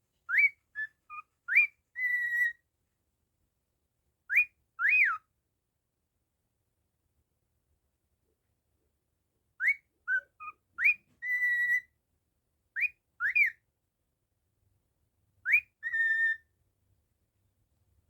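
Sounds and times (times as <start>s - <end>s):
cockatiel whistling: 0.3s - 2.6s, 4.3s - 5.2s, 9.6s - 11.9s, 12.8s - 13.6s, 15.4s - 16.5s.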